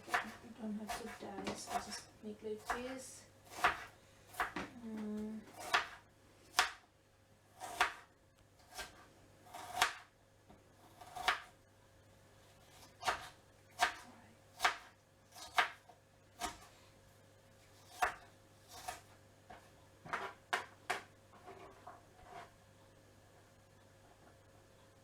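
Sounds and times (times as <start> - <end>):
knife chopping on cutting board: 0.1 - 2.0, 3.5 - 4.7, 5.5 - 6.8, 7.6 - 8.0, 8.6 - 10.1, 11.0 - 11.5, 12.7 - 14.0, 14.6 - 15.8, 16.4 - 16.7, 17.8 - 22.5.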